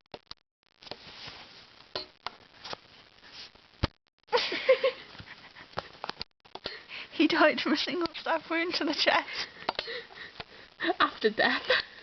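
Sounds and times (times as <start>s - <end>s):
breathy noise: 5.0s - 7.2s, 9.2s - 12.0s.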